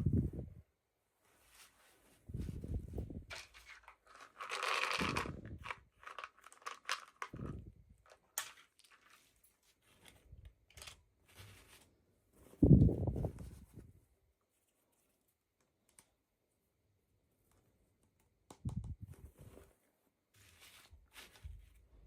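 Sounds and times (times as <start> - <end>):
plastic packaging crinkling: 3.3 - 9.3.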